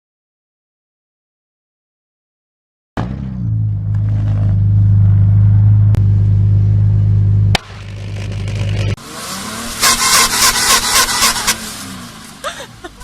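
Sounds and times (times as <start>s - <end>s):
car exhaust droning: 3.0s - 13.0s
crackling and clattering noise: 7.5s - 9.0s.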